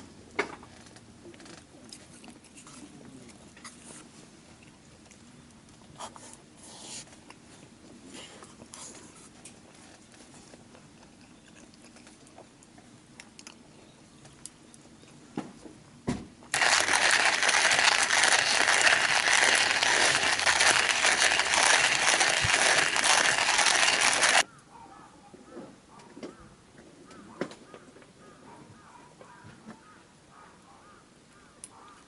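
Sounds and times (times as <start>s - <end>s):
loud dense crackling: 16.5s - 24.4s.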